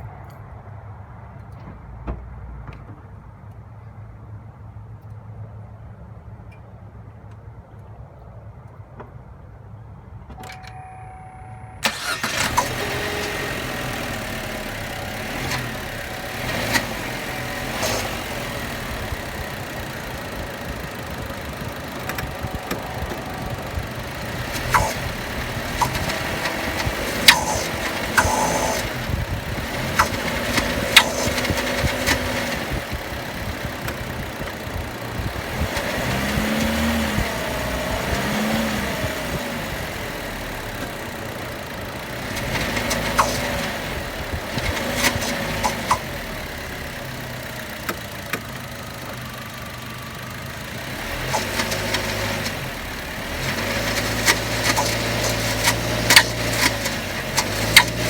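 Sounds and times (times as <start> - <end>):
car engine running: 11.8 - 58.0
sharp engine clicks: 11.8 - 58.0.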